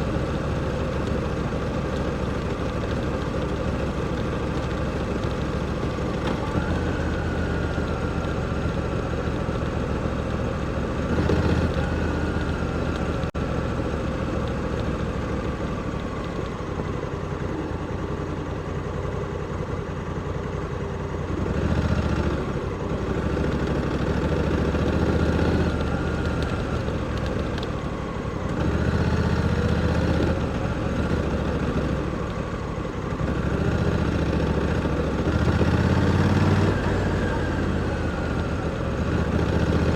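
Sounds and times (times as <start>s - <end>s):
motorcycle engine revving: 5.0s - 13.7s, 21.3s - 27.8s, 28.5s - 32.4s, 33.0s - 39.9s.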